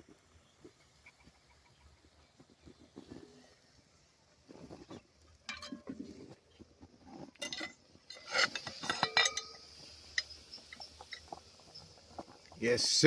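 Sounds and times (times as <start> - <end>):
metal cookware clinking: 5.4 - 6.0, 7.4 - 11.4.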